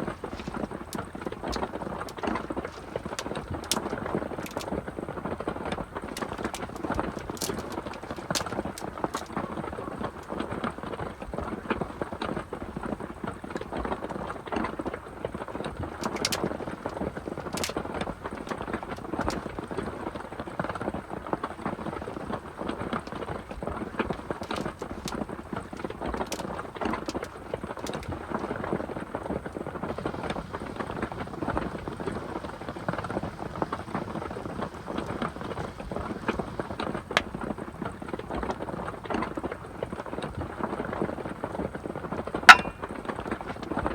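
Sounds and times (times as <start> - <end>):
heavy rain falling: 29.8 - 38.3
sharp water drips: 42.5 - 42.9.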